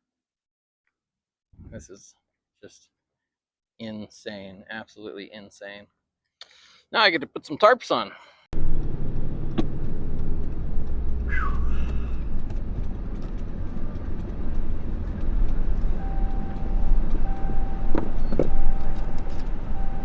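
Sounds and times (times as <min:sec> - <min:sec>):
truck engine and road rumble: 0:08.6 - 0:20.0
short falling squeal: 0:11.3 - 0:12.2
steady tone: 0:11.3 - 0:12.2.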